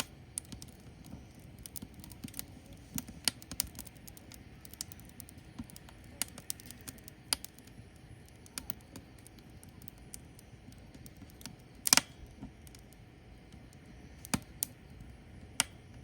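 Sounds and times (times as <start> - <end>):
firewood crackling and popping: 0.0 - 16.0.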